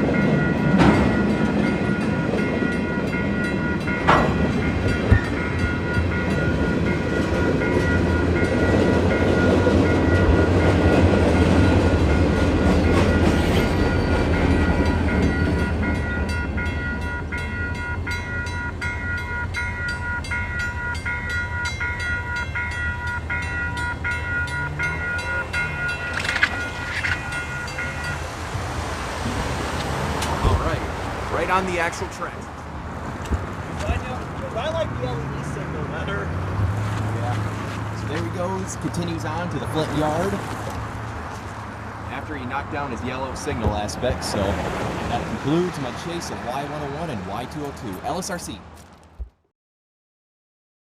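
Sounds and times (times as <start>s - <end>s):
crossing signal bell ringing: 0.0s - 28.5s
freight train rumbling: 0.0s - 48.7s.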